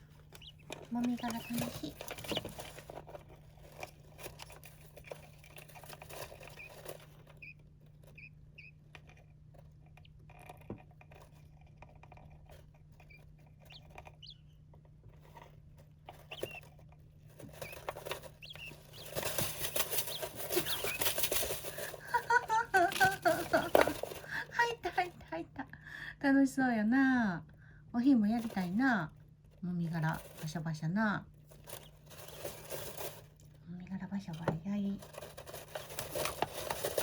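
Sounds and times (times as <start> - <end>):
small birds chirping: 0.0 - 9.3, 12.7 - 15.4, 16.0 - 24.6, 31.5 - 32.8.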